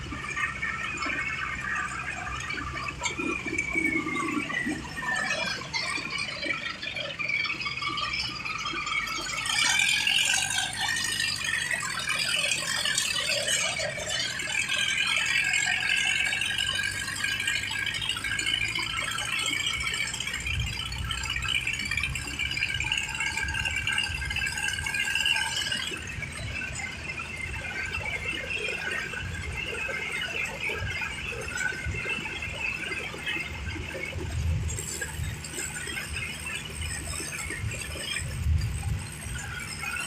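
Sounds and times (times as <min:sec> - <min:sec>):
tractor engine drone: 0:00.0 - 0:40.0.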